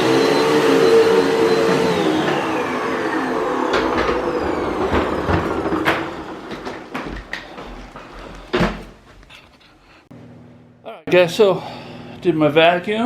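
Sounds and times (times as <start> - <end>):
vacuum cleaner motor winding down: 0.0 - 9.0
knocks and clunks of handling: 3.7 - 10.1.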